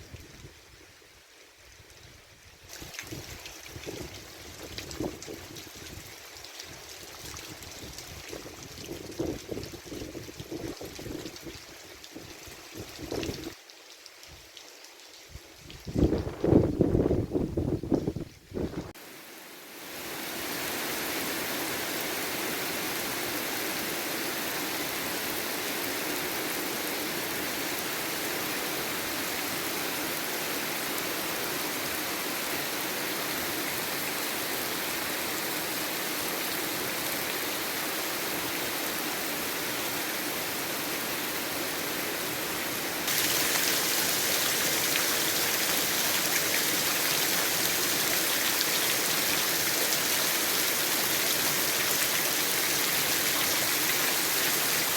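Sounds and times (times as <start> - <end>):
heavy rain falling: 19.9 - 54.9.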